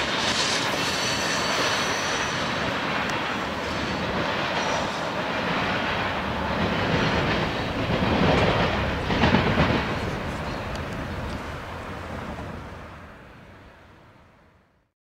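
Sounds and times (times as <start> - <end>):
freight train rumbling on rails: 0.0 - 14.7.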